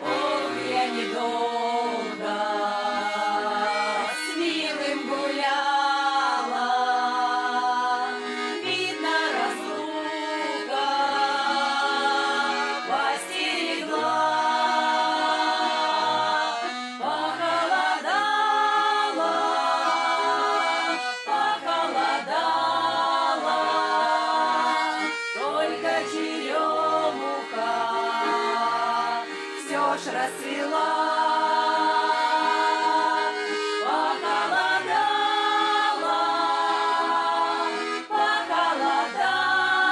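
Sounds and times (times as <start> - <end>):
instrumental accompaniment: 0.0 - 39.9
vocal ensemble singing: 0.0 - 39.9.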